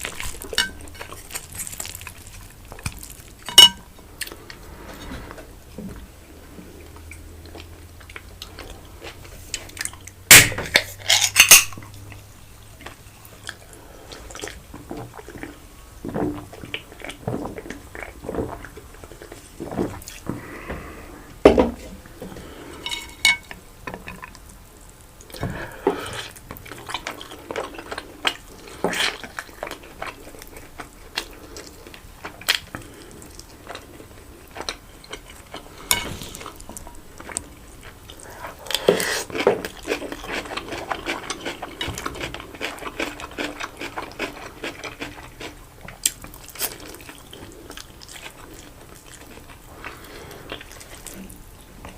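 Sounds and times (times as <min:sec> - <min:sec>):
chewing and mouth noises: 0:00.0 - 0:03.5, 0:25.2 - 0:51.9
cutlery clinking on plate: 0:03.5 - 0:03.8.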